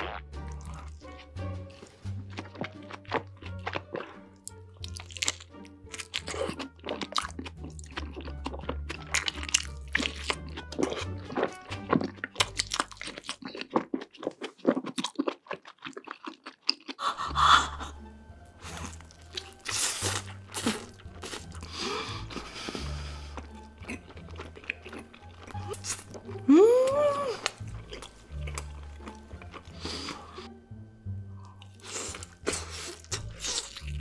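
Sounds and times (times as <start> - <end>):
background music with bass: 0.0 - 6.5
crunching and wet chewing: 0.5 - 17.0, 18.6 - 26.4, 27.4 - 30.5, 31.4 - 34.0.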